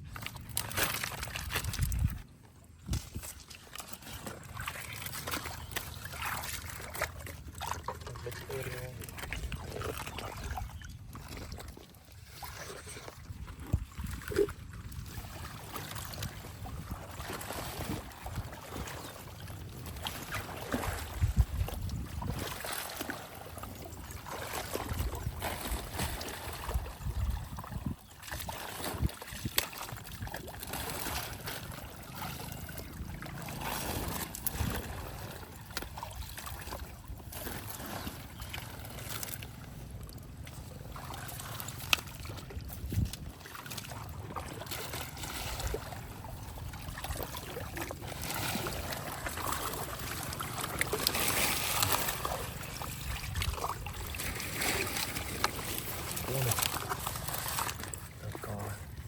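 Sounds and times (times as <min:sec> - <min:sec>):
water sloshing and splashing: 0:00.0 - 0:59.0.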